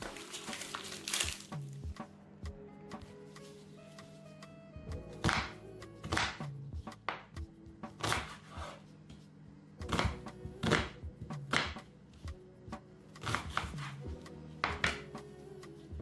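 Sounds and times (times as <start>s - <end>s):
background music: 0.0s - 16.0s
knife slicing onion on board: 5.2s - 7.3s, 7.9s - 9.2s, 9.8s - 11.8s, 13.2s - 14.0s.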